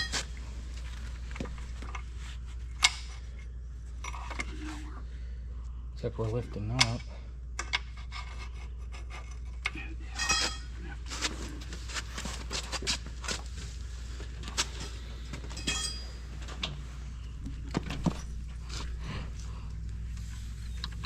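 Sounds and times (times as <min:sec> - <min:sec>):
steady low hum: 0:00.0 - 0:21.0
ringing metal clang: 0:10.2 - 0:10.7, 0:15.6 - 0:16.3.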